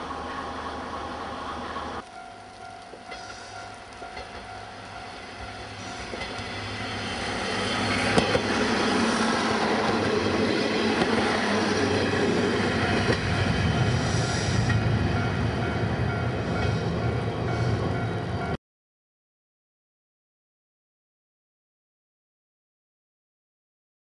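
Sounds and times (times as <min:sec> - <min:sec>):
diesel railcar engine running: 0:00.0 - 0:18.6
train rumbling on rails: 0:00.0 - 0:18.6.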